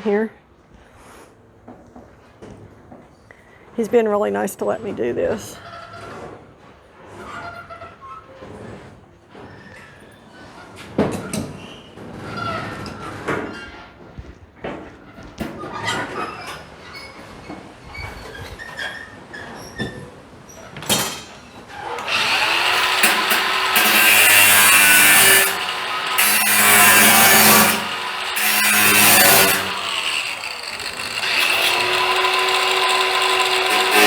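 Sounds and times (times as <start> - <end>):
power tool cutting sheet metal: 21.8 - 34.0.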